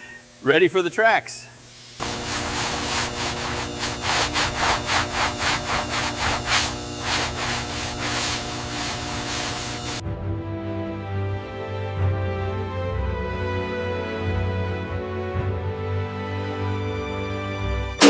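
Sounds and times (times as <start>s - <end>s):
rhythmic rubbing strokes: 1.8s - 10.0s
background music: 10.0s - 18.0s.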